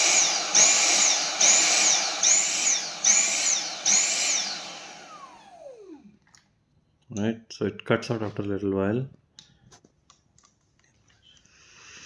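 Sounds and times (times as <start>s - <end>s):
vacuum motor whine pulsing: 0.0s - 6.1s.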